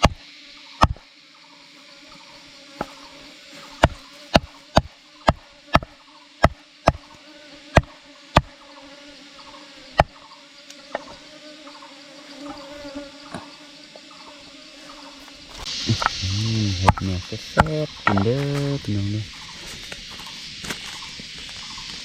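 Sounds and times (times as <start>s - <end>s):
sharp knocks: 0.0s - 0.2s, 0.8s - 1.0s, 3.8s - 7.0s, 16.8s - 18.6s
insect buzz: 0.0s - 22.0s.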